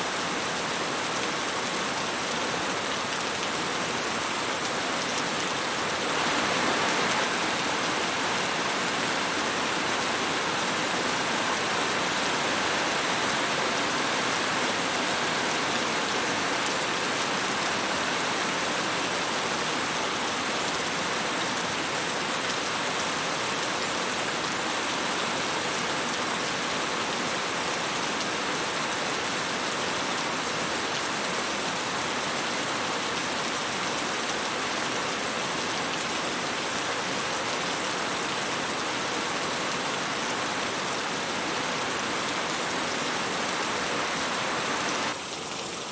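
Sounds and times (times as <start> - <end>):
rain pattering: 2.9 - 14.0.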